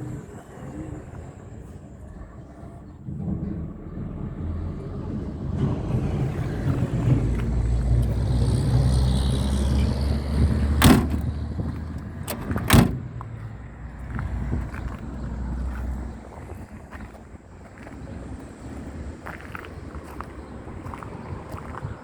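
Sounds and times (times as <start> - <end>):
car engine running: 8.0 - 13.4
sharp knocks: 10.8 - 13.1.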